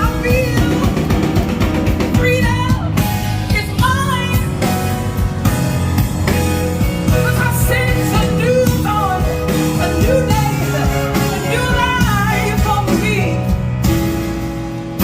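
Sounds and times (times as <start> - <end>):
person singing: 0.0 - 1.4, 7.0 - 13.7
live band music: 0.0 - 15.0.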